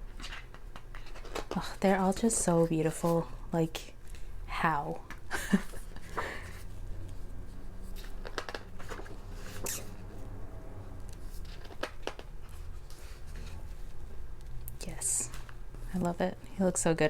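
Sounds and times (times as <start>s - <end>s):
magazine pages turning: 0.0s - 3.2s, 5.6s - 10.2s, 11.1s - 14.1s
low steady hum: 0.0s - 17.0s.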